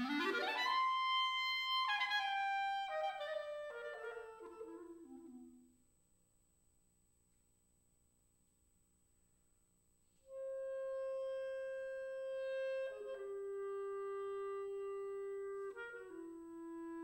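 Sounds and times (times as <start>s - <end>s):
solo clarinet: 0.0s - 5.8s, 10.2s - 17.0s.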